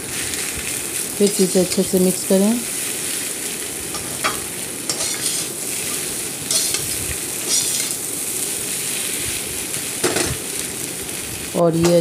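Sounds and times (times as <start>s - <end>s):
potato filling sizzling in oil: 0.0s - 12.0s
spoon scraping pan: 4.0s - 8.0s.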